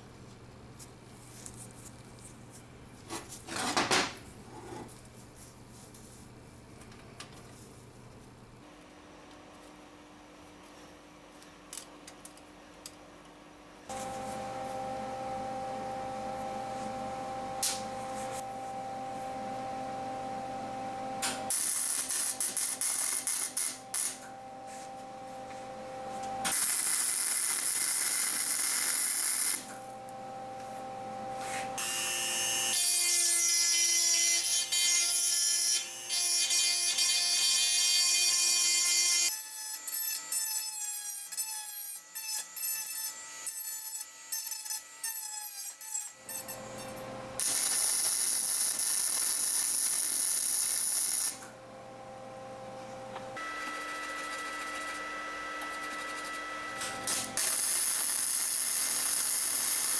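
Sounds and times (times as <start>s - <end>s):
electric power tool humming: 53.4s - 59.9s.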